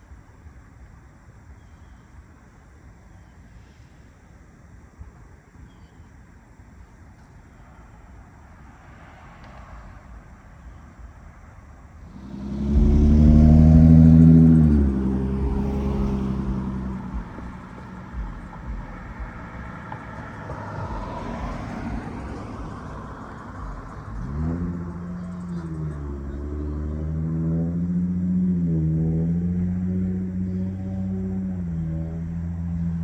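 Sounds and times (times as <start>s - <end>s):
tyre and road noise: 7.2s - 33.0s
vehicle engines passing: 8.6s - 33.0s.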